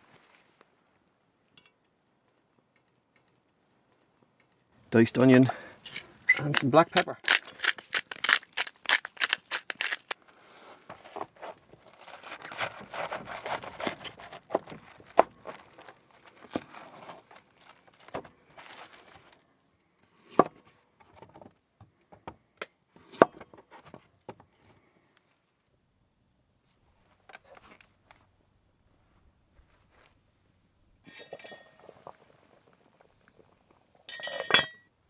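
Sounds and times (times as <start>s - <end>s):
packaging rustling and crinkling: 5.1s - 10.2s, 11.8s - 19.3s
quick clicks: 5.2s - 10.2s.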